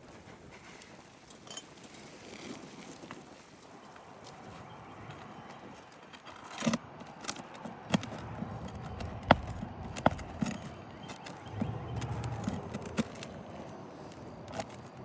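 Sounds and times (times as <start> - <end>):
tools scraping shingles: 5.8 - 15.0
tools knocking on roof shingles: 6.6 - 11.4.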